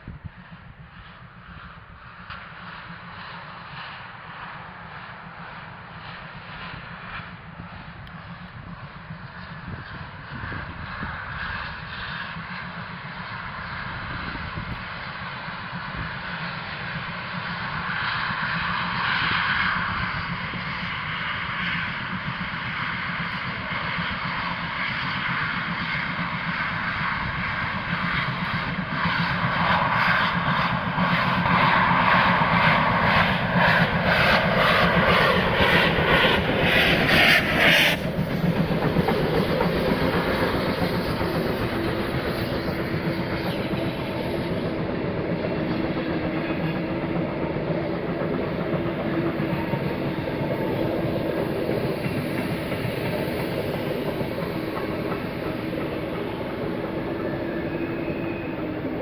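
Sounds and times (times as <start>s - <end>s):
train rolling on rails: 0.0s - 59.0s
steam locomotive rhythmic beats: 22.0s - 59.0s.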